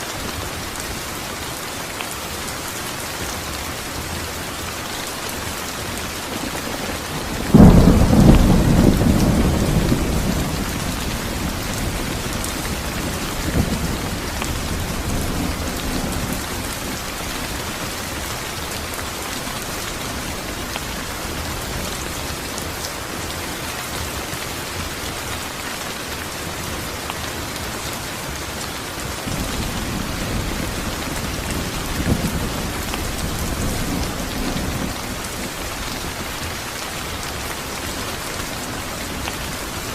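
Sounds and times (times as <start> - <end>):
heavy rain: 0.0 - 39.9
thunder clap and rumbles: 6.4 - 22.3, 29.1 - 37.5.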